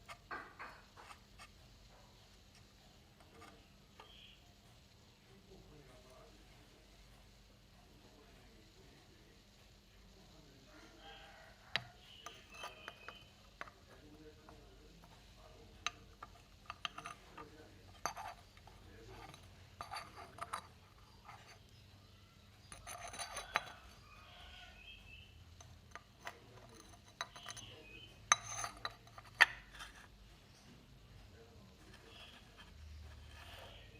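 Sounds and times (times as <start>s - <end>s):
ceramic scraping rubs: 0.0s - 4.4s, 11.0s - 24.8s, 25.6s - 30.2s, 31.7s - 33.9s
ceramic pieces clinking: 15.8s - 18.4s, 19.1s - 21.6s, 22.7s - 23.8s, 25.6s - 30.0s.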